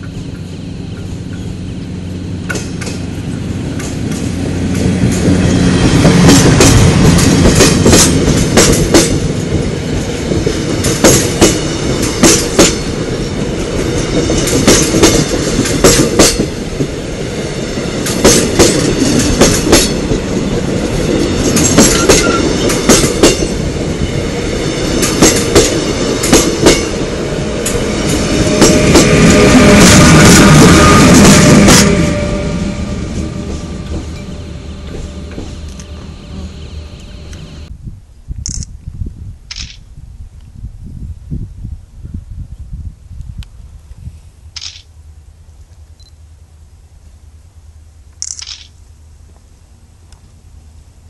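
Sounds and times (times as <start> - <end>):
wheels clacking over rail joints: 0.0 - 17.0
passenger train rumbling past: 0.0 - 38.3.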